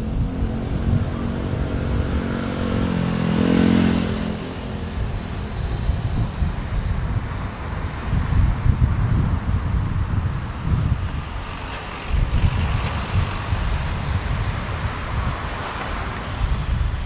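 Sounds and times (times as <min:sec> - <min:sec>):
wind buffeting microphone: 0:00.0 - 0:17.0
waves washing onto beach: 0:04.4 - 0:17.0.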